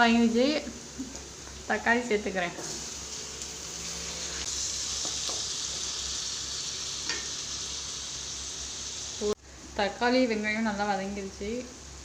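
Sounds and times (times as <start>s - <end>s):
tomatoes sizzling in hot oil: 0.2s - 9.4s.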